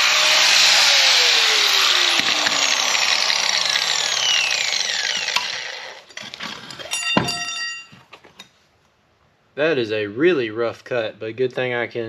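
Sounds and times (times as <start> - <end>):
power cutting tool spinning down: 0.0 - 6.1
metal clang: 6.9 - 8.0.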